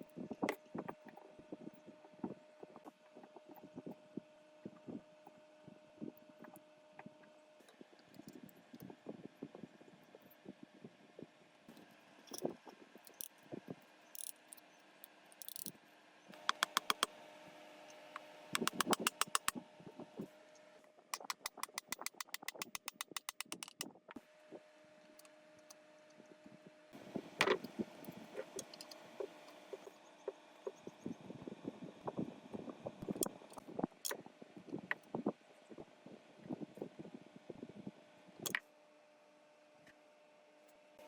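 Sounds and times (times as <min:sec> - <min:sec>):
rapid ratchet clicking: 0:15.4 - 0:15.7, 0:16.4 - 0:17.1, 0:18.6 - 0:19.5, 0:21.2 - 0:23.9.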